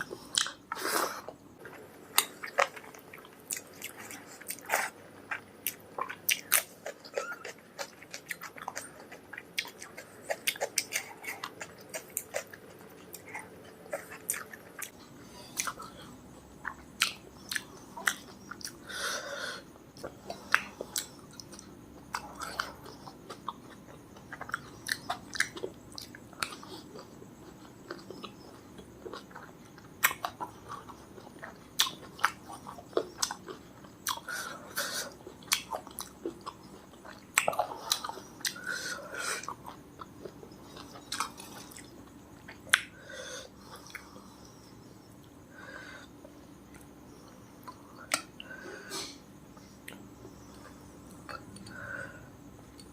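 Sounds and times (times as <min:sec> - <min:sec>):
person chewing food: 0:00.0 - 0:52.9
mouth clicks and smacks: 0:40.8 - 0:43.0.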